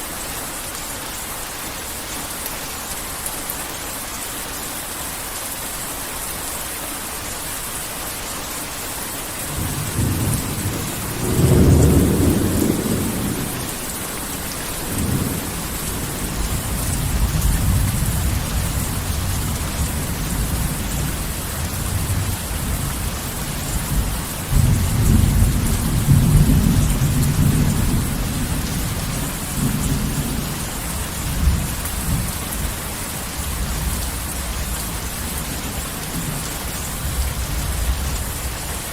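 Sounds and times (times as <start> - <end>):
heavy rain falling: 0.0 - 38.9
low rolling thunder: 9.5 - 14.0, 14.8 - 32.8.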